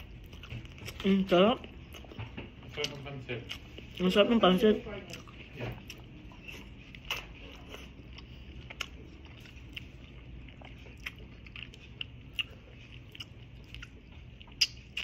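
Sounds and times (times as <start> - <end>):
person chewing noodles: 0.0 - 15.0
mouth clicks and smacks: 14.4 - 15.0.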